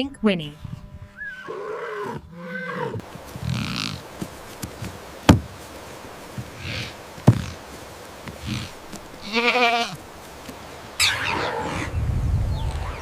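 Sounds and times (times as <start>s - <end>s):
horse whinny: 1.1s - 4.0s, 11.0s - 11.9s
horse puffing breaths: 2.8s - 5.6s, 6.3s - 9.0s
sharp knocks: 5.3s - 5.6s.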